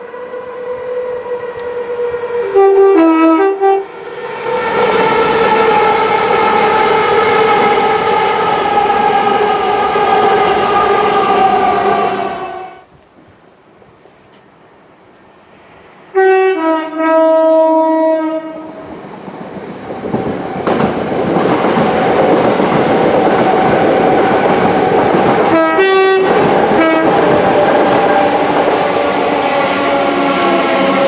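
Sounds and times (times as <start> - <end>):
two-tone train horn: 0.0 - 4.0, 16.1 - 18.8, 25.5 - 27.4
train passing at speed: 0.0 - 12.9, 14.6 - 31.0.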